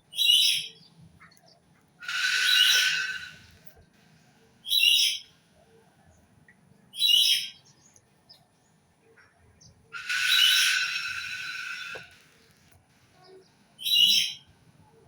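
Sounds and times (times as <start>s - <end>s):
bird calling: 2.0s - 3.5s, 10.0s - 12.5s.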